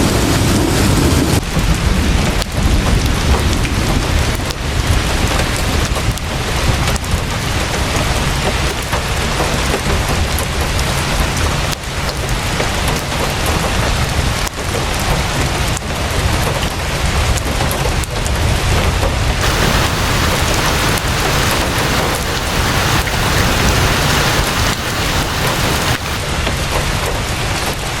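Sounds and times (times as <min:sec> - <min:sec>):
heavy rain falling: 0:19.4 - 0:26.6.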